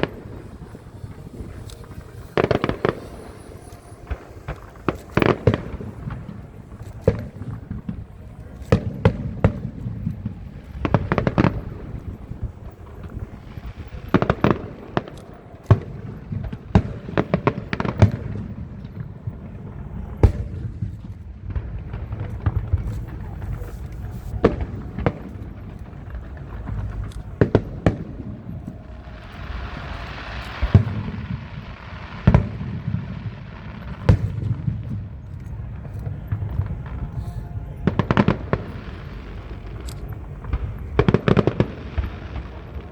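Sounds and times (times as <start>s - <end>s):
fireworks shells bursting: 0.0s - 42.9s.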